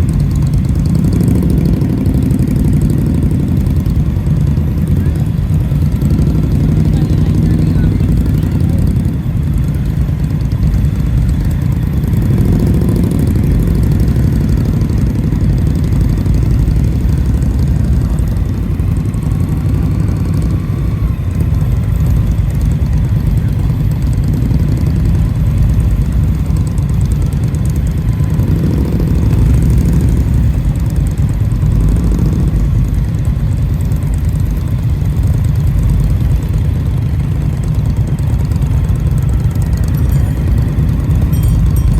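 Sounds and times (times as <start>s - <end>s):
motorcycle engine: 0.0s - 41.9s.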